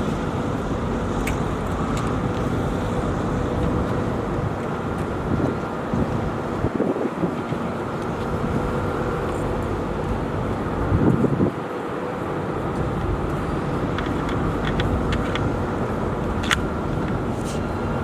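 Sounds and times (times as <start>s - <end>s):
handling rumble: 0.0s - 18.0s
steady mechanical hum: 0.0s - 18.0s
wind noise: 0.0s - 18.0s.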